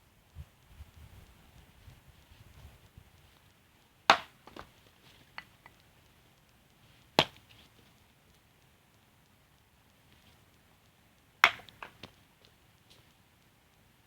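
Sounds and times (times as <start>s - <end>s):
axe chopping firewood: 4.1s - 4.8s, 7.2s - 7.5s, 11.4s - 12.2s.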